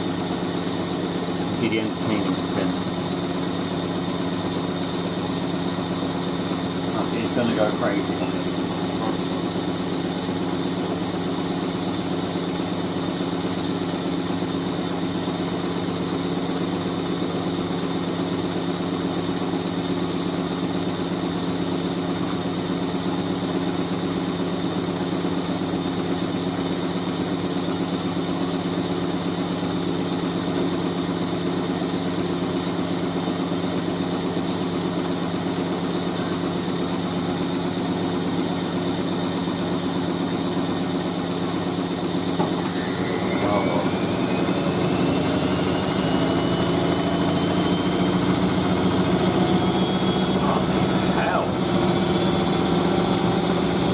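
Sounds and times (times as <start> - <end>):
washing machine spinning: 0.0 - 53.9.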